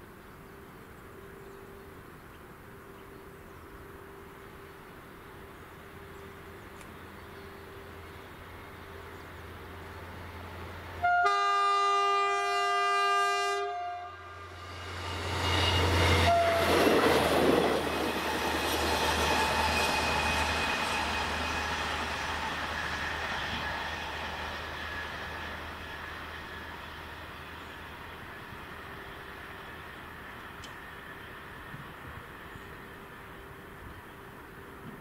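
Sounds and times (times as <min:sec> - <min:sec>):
train horn blast: 0:11.0 - 0:17.2
train wheels rumbling on rails: 0:14.5 - 0:35.0.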